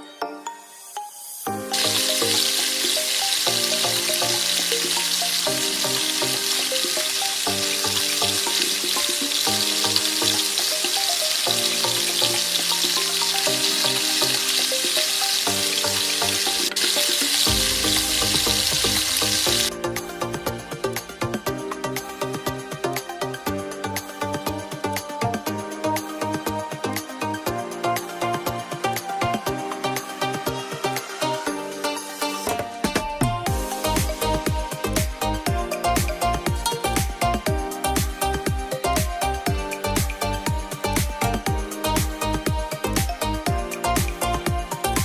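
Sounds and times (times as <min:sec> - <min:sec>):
dough sizzling in hot oil: 0:01.7 - 0:19.7.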